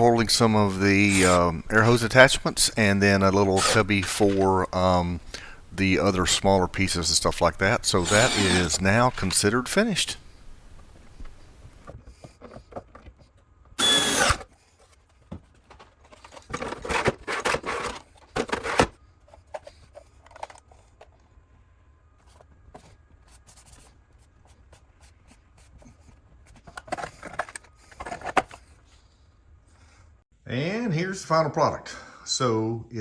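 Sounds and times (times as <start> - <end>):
power drill running: 1.0 - 1.4, 3.6 - 4.2, 7.9 - 9.0, 13.8 - 14.4.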